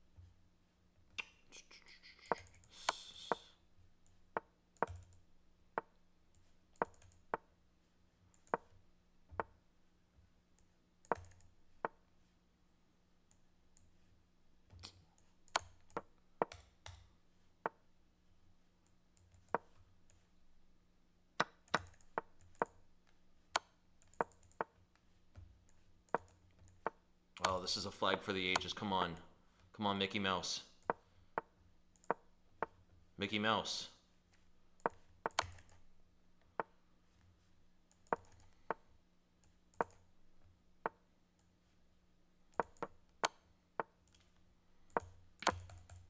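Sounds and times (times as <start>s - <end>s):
sharp mouse clicks: 1.1s - 5.2s, 5.8s - 7.5s, 8.3s - 8.8s, 10.6s - 12.0s, 14.8s - 17.1s, 19.2s - 20.2s, 21.4s - 22.8s, 23.6s - 24.8s, 25.7s - 27.6s, 30.8s - 32.8s, 34.8s - 35.8s, 37.9s - 38.8s, 39.4s - 40.0s, 42.5s - 44.3s, 44.9s - 46.0s.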